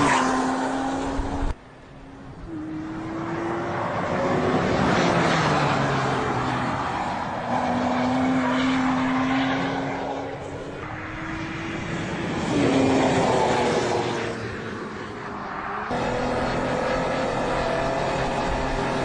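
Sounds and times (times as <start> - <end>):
car engine running at speed: 15.8 - 19.0.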